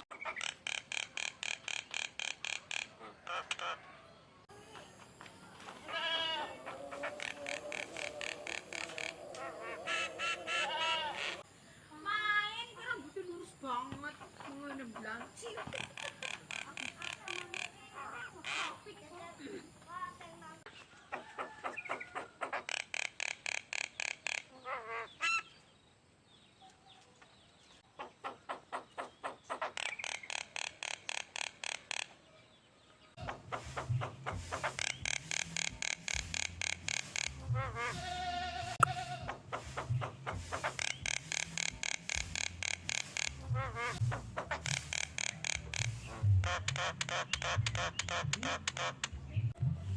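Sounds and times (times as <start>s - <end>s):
songbird singing: 0.0s - 49.9s
songbird repeating notes: 33.2s - 37.9s, 38.8s - 49.6s.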